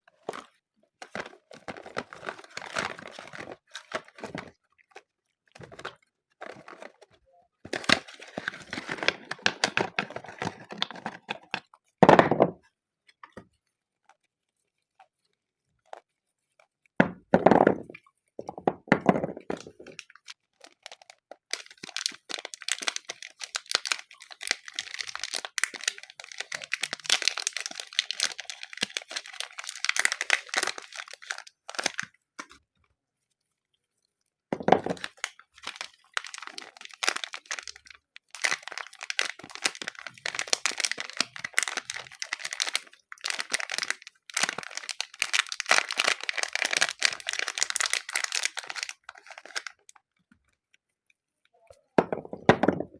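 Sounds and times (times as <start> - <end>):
packaging crinkling and tearing: 0.1 - 11.9, 19.4 - 32.6, 34.7 - 50.1.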